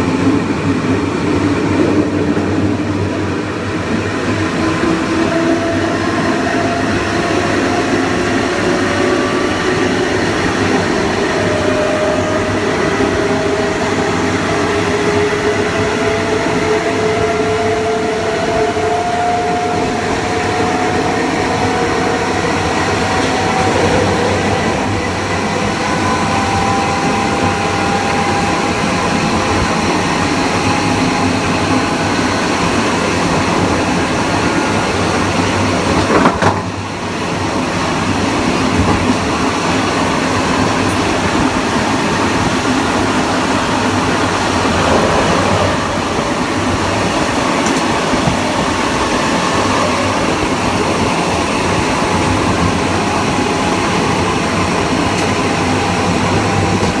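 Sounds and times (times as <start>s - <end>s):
train rolling on track: 0.0s - 57.0s.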